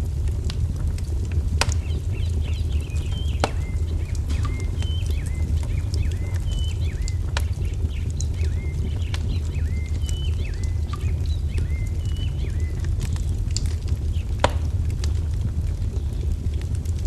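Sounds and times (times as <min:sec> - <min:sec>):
wood fire crackling: 0:00.0 - 0:17.0
songbird chirping: 0:01.7 - 0:13.2.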